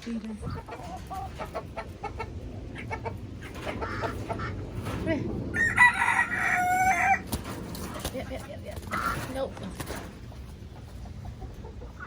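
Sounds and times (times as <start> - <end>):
chickens clucking: 0.0 - 12.0
rooster crowing: 5.5 - 7.2.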